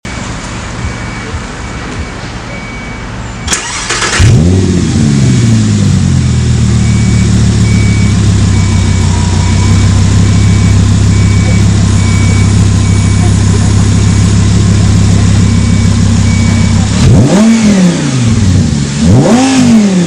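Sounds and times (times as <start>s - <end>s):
car engine revving and idling: 0.1s - 20.0s
starter motor whirring: 3.5s - 4.5s.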